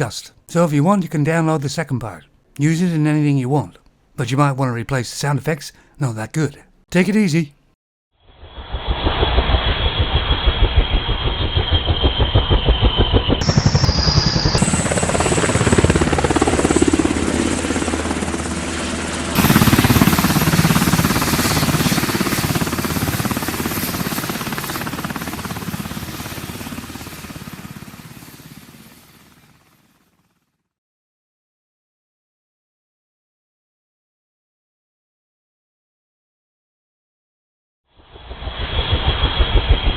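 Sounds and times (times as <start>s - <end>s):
helicopter engine noise: 8.5s - 30.2s, 38.3s - 39.9s
helicopter rotor blades chopping: 8.8s - 29.8s.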